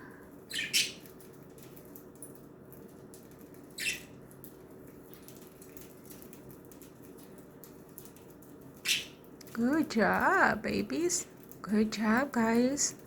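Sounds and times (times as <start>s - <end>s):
low steady hum: 0.0s - 13.0s
budgerigar chirp: 0.5s - 1.0s.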